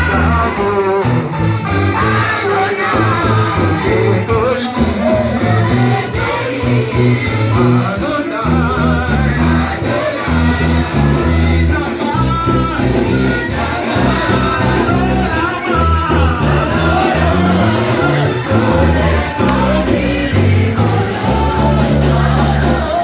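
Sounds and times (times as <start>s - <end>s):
bass line: 0.0s - 23.0s
guitar: 0.0s - 23.0s
person singing: 0.0s - 23.0s.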